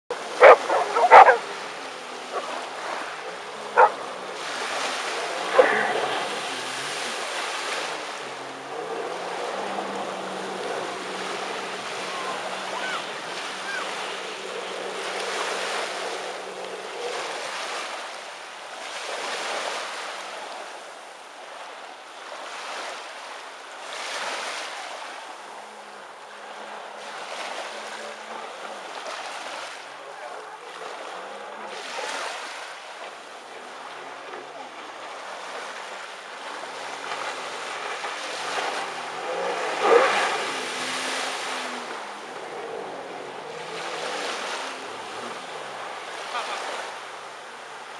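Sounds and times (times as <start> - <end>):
faint engine hum: 0.1 - 17.5
sea water rushing: 0.1 - 47.9.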